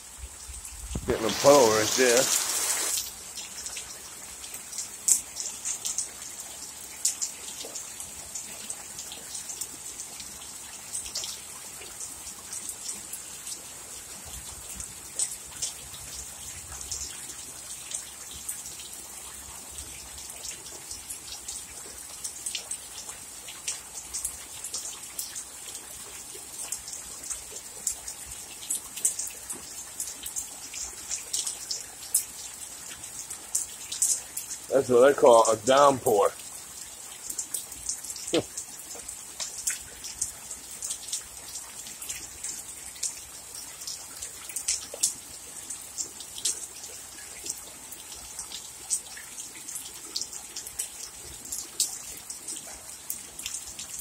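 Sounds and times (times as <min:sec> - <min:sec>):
raindrops tapping close by: 0:00.5 - 0:54.0
heavy rain hiss: 0:00.7 - 0:03.4, 0:34.6 - 0:36.4.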